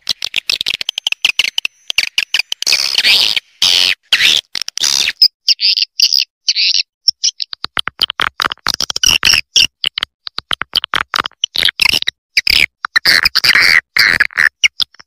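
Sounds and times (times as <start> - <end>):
short clicks and chirps: 0.0 - 7.7.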